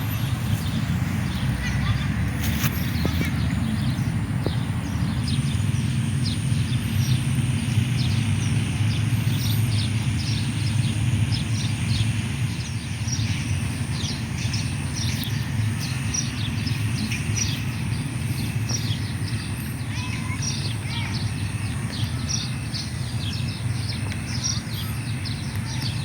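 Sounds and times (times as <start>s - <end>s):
steady low rumble: 0.0s - 26.0s
bird chirps: 13.0s - 26.0s.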